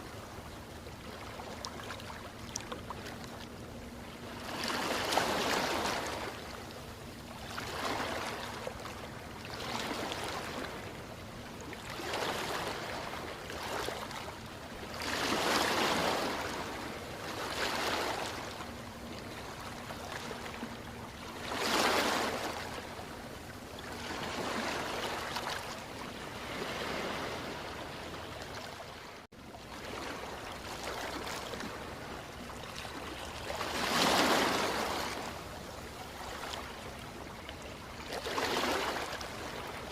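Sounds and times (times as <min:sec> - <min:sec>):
ocean waves washing in: 0:00.0 - 0:39.9.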